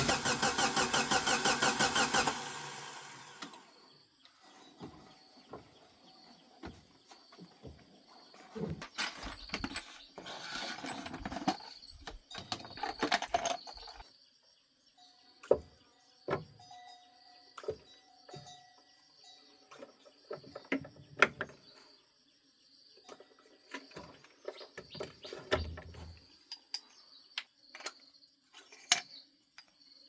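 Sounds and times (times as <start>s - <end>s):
tools clinking and knocking: 8.4s - 14.0s, 23.1s - 29.8s.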